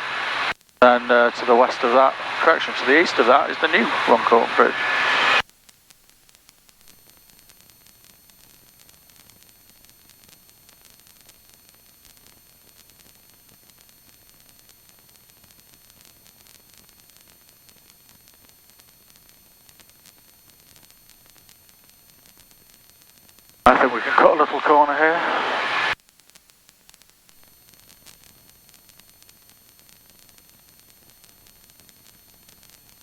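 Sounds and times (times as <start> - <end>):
faint electronic hiss: 0.0 - 5.4, 23.7 - 26.0
thin high-pitched whines: 0.0 - 5.4.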